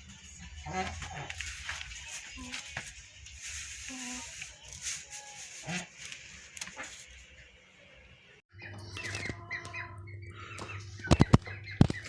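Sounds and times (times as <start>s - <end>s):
chickens calling: 8.5s - 12.0s.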